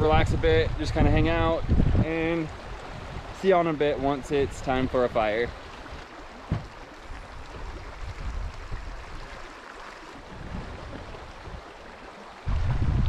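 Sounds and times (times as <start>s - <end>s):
wind buffeting microphone: 0.0s - 3.4s, 5.8s - 9.5s, 10.2s - 13.0s
wind blowing: 0.0s - 13.0s
knock: 6.5s - 6.7s.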